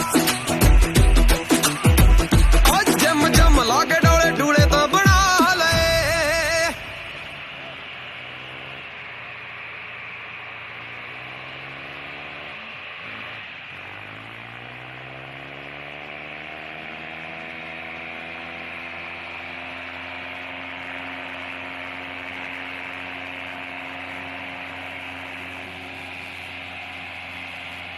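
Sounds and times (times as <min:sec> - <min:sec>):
tractor diesel engine labouring: 0:00.0 - 0:27.9.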